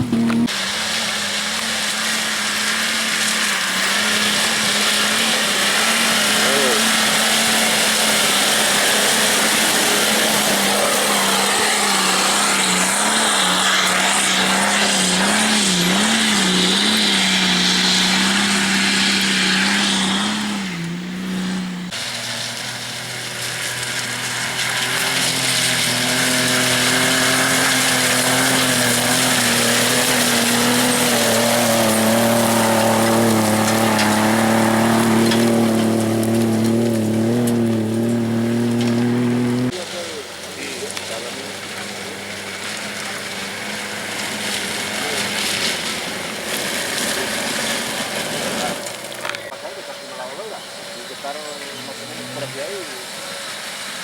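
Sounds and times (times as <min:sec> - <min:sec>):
engine at lower steady note: 0:00.0 - 0:01.9, 0:07.8 - 0:46.4
off-road engine at high revs: 0:00.0 - 0:54.0
tyres on stones: 0:20.6 - 0:49.6.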